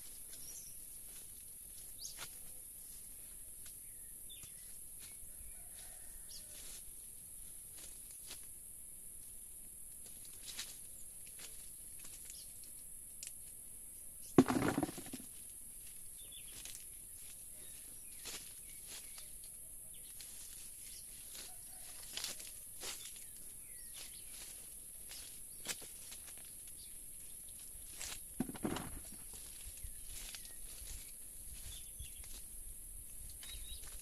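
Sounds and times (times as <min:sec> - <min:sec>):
small crackles and rustles: 0:09.8 - 0:13.6, 0:14.4 - 0:34.0.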